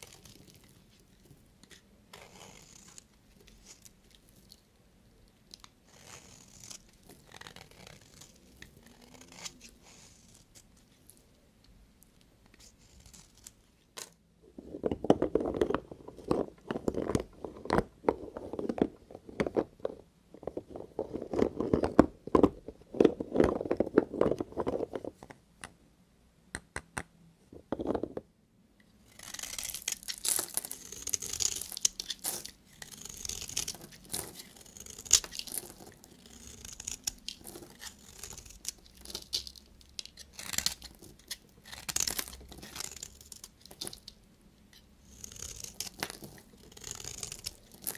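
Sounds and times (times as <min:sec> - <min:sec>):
knife cutting soap crunching: 0:29.1 - 0:47.9.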